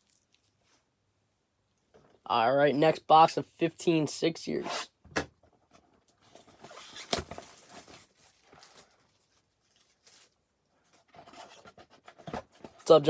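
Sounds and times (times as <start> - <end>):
handling noises: 5.1 - 13.0
packaging crinkling: 6.4 - 10.4.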